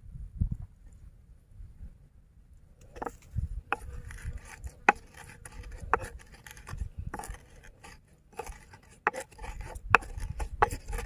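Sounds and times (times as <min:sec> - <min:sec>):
rubbing and scraping: 0:02.8 - 0:11.0.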